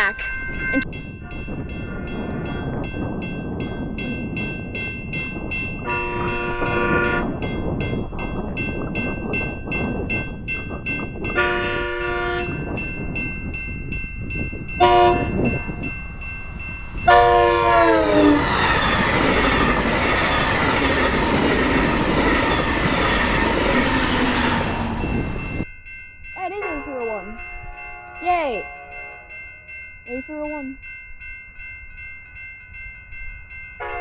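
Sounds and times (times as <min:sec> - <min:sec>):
crossing bells ringing: 0:00.0 - 0:34.0
train wheels clattering on rails: 0:01.5 - 0:25.7
train horn blasts: 0:05.8 - 0:07.3, 0:11.3 - 0:12.6, 0:14.8 - 0:15.9, 0:17.0 - 0:18.5, 0:26.8 - 0:29.5, 0:33.8 - 0:34.0.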